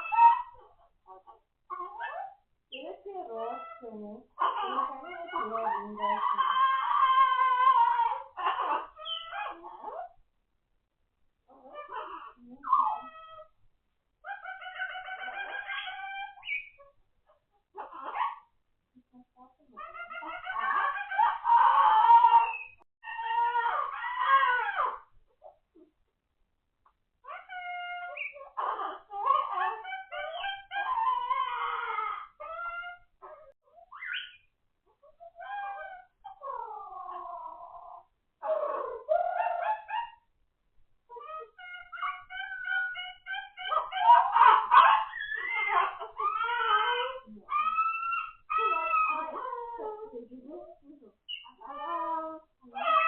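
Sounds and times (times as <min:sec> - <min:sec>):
parrot calling: 0:00.0 - 0:00.7, 0:04.4 - 0:10.0, 0:14.3 - 0:16.8, 0:27.3 - 0:34.5, 0:51.2 - 0:52.0.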